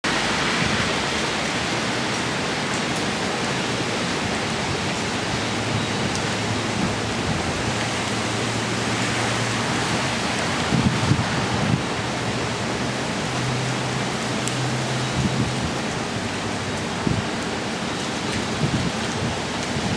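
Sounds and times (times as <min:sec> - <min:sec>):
strong wind rushing: 0:05.2 - 0:12.2, 0:18.4 - 0:19.9.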